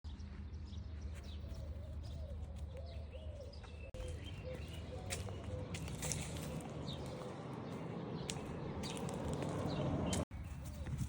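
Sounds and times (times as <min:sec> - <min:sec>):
low bird cooing: 0:01.4 - 0:06.6.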